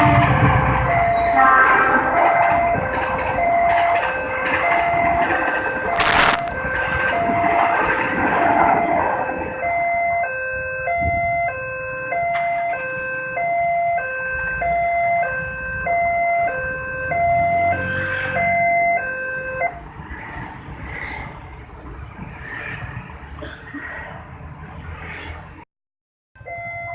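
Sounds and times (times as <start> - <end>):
rail vehicle rumbling past: 0.0 - 9.9.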